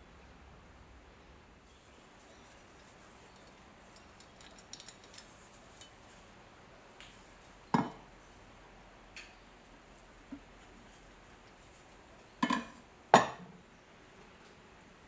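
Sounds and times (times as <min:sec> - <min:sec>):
metallic clicks and clinks: 0:02.4 - 0:06.0.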